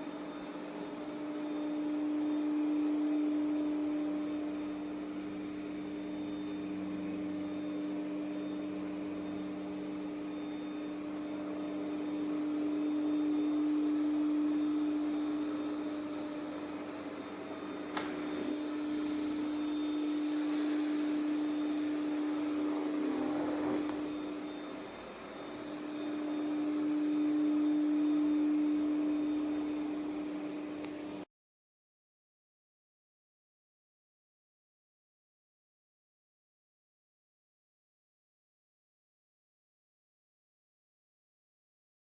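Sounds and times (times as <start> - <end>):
robot vacuum motor humming: 14.5 - 31.1
click: 17.9 - 18.5, 30.8 - 31.0.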